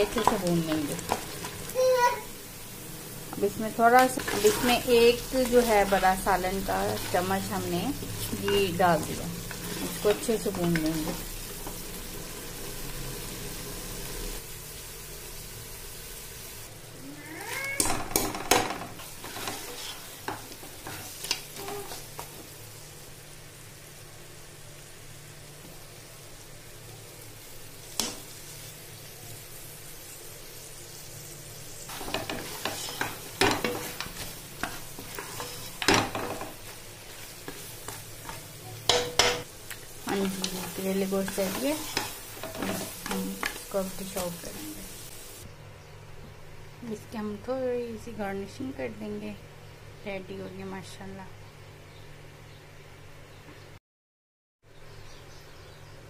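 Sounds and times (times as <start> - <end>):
meat sizzling in a pot: 0.0 - 45.5
wooden spoon scraping a pot: 4.0 - 11.8, 19.0 - 22.3, 31.9 - 38.5, 40.1 - 44.2.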